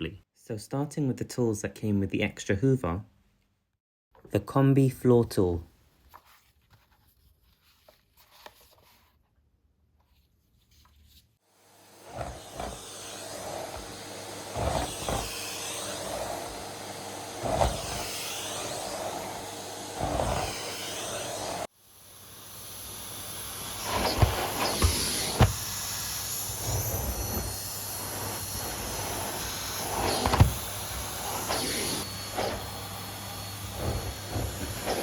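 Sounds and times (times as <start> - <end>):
vacuum cleaner running: 11.5 - 35.0.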